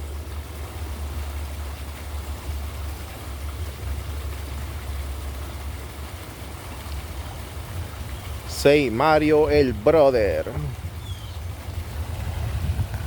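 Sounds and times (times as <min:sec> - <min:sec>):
wind rumble on microphone: 0:10.5 - 0:13.0.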